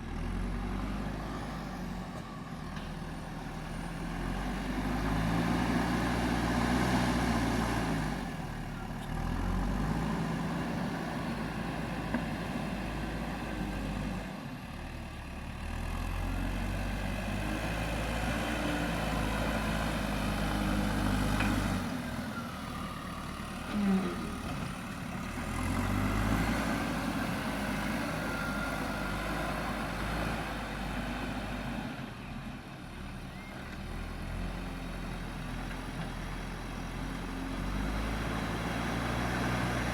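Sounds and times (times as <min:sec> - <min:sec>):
diesel engine revving under load: 0:00.0 - 0:02.8, 0:03.4 - 0:39.9
hydraulics digging soil: 0:18.2 - 0:32.0.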